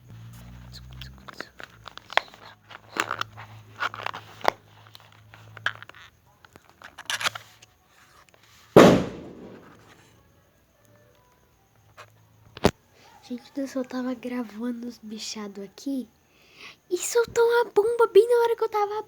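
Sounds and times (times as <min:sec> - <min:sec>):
firecracker bang: 0:08.8 - 0:09.8.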